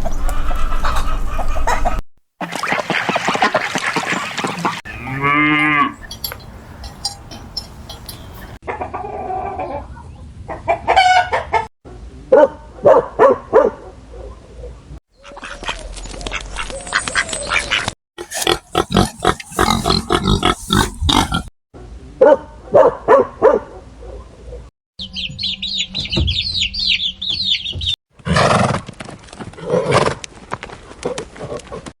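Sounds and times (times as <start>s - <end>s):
chickens clucking: 0.3s - 4.8s, 17.6s - 21.5s.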